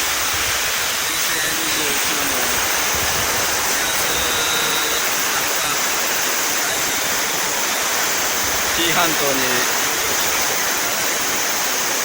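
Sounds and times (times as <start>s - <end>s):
flooded river rushing: 0.0s - 12.0s.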